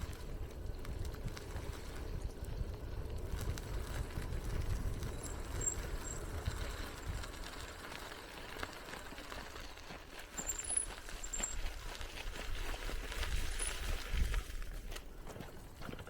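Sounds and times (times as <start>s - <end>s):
small rattling ticks: 0.0s - 15.0s
bicycle tyres rolling: 0.0s - 16.0s.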